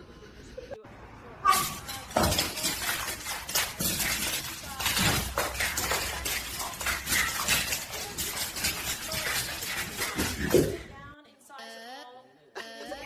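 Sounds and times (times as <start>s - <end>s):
hard objects clattering: 1.5s - 11.1s.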